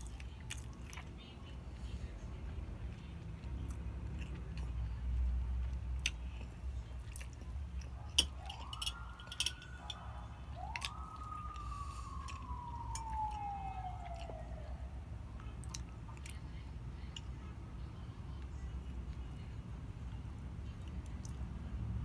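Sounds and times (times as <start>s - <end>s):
siren wailing: 8.2s - 15.2s.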